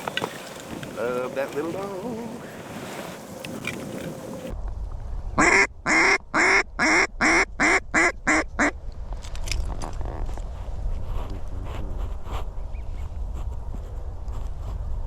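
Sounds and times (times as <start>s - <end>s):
wind rumble: 0.0s - 15.0s
duck call quacking: 5.4s - 8.7s.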